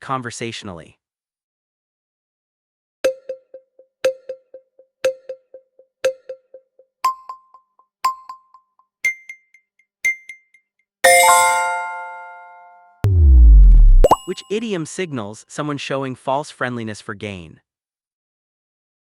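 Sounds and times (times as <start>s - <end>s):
bell-like countdown beeps: 3.1s - 9.5s.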